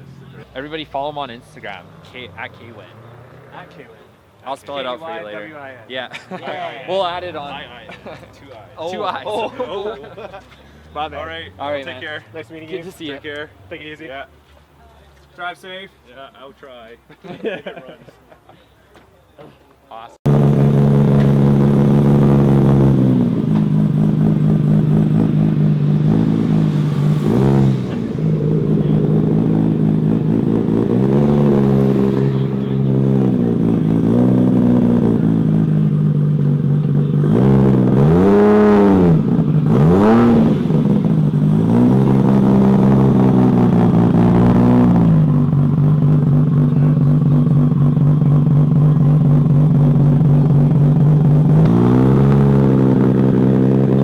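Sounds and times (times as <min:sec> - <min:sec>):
car engine idling and revving: 0:00.0 - 0:05.7, 0:20.2 - 0:54.0.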